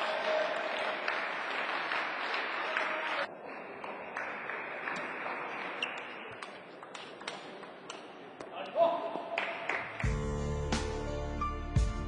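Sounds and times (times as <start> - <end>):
crowd applause: 0.0 - 5.9.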